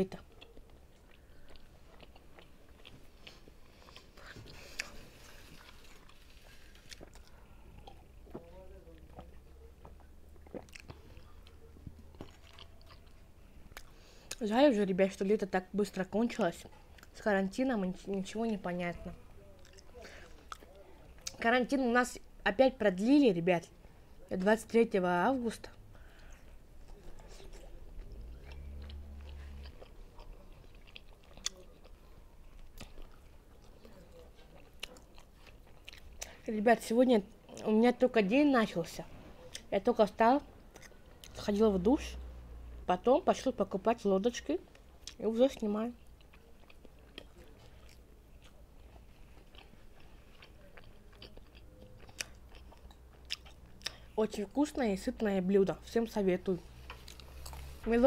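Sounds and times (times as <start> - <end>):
quiet chewing: 0.1 - 14.4, 16.3 - 17.2, 17.9 - 21.4, 25.5 - 37.7, 38.6 - 39.8, 40.4 - 41.5, 44.6 - 54.4, 56.6 - 58.0.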